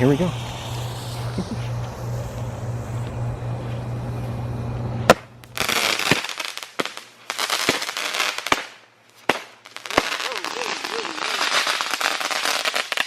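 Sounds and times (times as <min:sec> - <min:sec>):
firework hissing and crackling: 0:00.0 - 0:13.0
firework bang: 0:05.0 - 0:07.0
sharp firework pops: 0:05.0 - 0:11.1.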